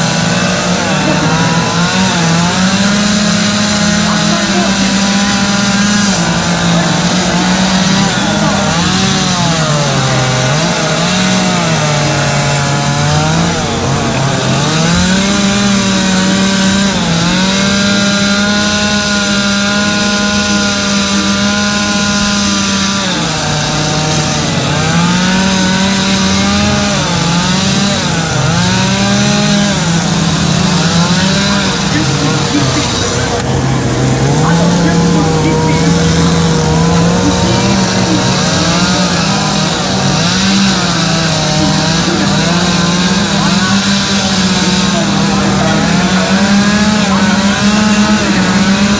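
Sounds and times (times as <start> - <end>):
chainsaw carving wood: 0.0 - 48.9.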